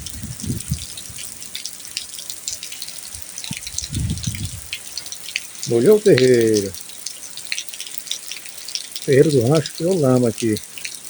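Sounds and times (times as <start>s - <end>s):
low rumbles: 0.0s - 1.3s, 3.5s - 4.8s
rainwater dripping and splattering: 0.0s - 11.0s
steady hiss of rain: 0.0s - 11.0s.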